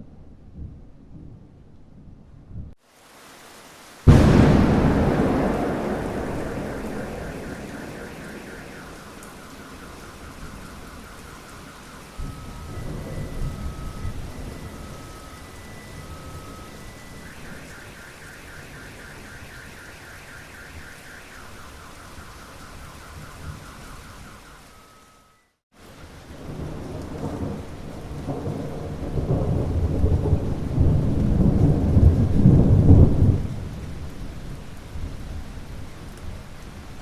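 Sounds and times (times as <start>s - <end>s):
steady rain: 2.8s - 37.0s
rolling thunder rumble: 4.1s - 24.4s, 26.3s - 36.4s
high pulsing tone: 4.1s - 25.5s.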